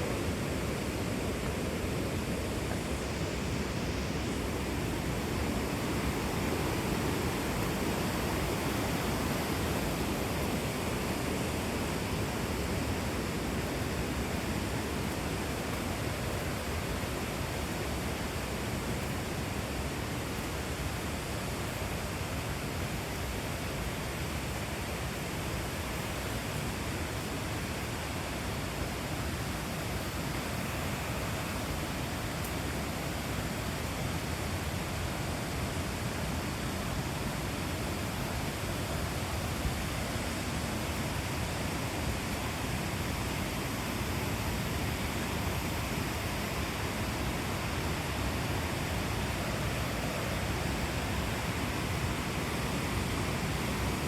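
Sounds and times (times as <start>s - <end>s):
waterfall rushing: 24.2s - 54.0s.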